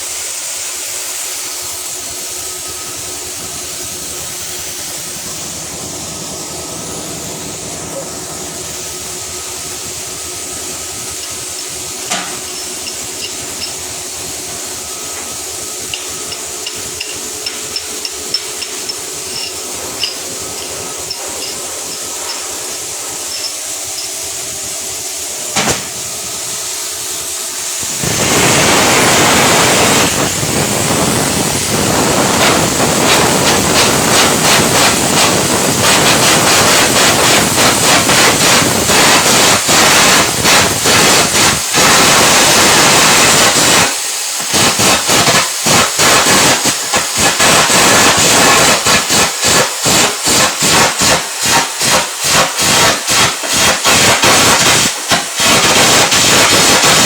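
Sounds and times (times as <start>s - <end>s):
arc welding crackle and hiss: 0.0s - 57.0s.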